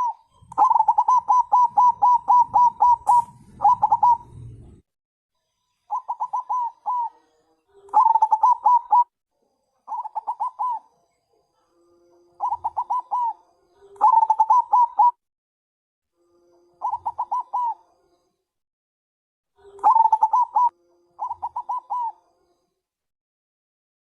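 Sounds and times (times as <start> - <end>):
dove cooing trilled notes: 0.0 - 4.8, 5.9 - 9.2, 9.9 - 10.9, 12.4 - 15.2, 16.8 - 17.8, 19.6 - 22.2.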